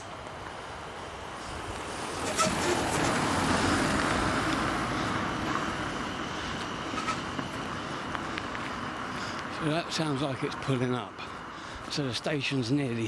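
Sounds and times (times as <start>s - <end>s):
train rumbling past: 0.7s - 10.4s.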